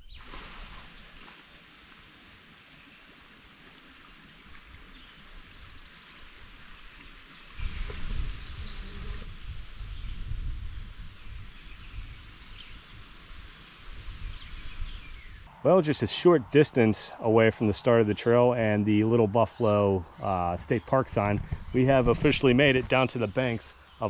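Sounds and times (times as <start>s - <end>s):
birds chirping: 0.0s - 13.1s, 13.7s - 24.0s
steady hiss: 11.4s - 15.5s.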